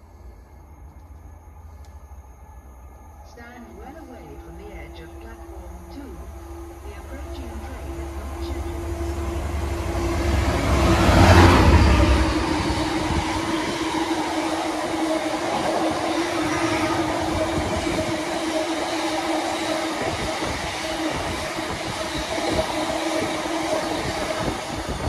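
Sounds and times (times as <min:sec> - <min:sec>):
constant hum: 0:00.0 - 0:11.0
train wheels on track: 0:03.3 - 0:25.0.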